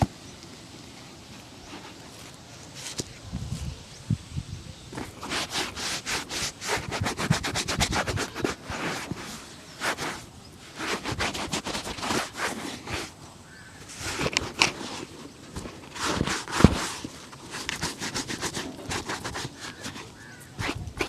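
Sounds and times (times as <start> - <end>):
brush scraping leather shoe: 5.0 - 13.2, 13.8 - 21.0.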